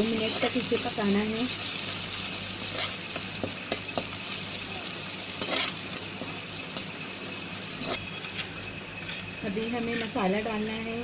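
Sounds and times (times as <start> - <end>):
onions sizzling in hot oil: 0.0 - 11.0
spatula scraping pan: 2.6 - 4.1, 5.4 - 6.3.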